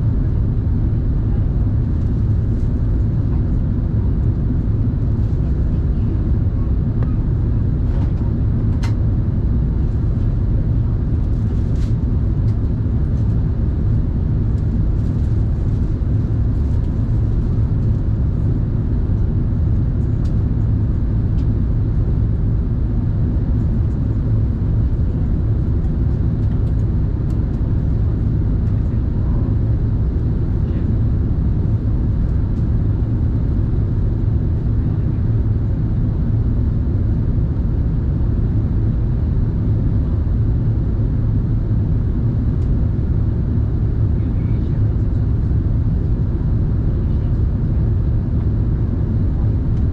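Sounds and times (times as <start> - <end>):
airplane cabin engine roar: 0.0 - 49.9.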